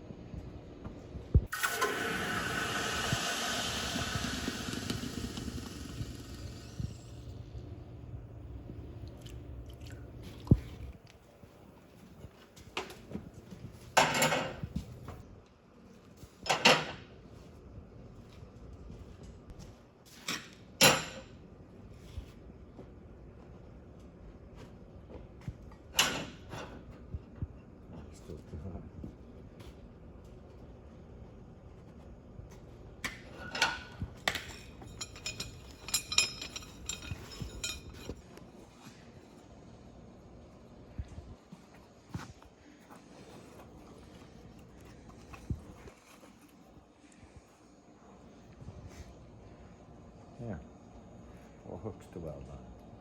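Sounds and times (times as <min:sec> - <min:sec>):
steel clattering scrapes: 0:34.6 - 0:38.2.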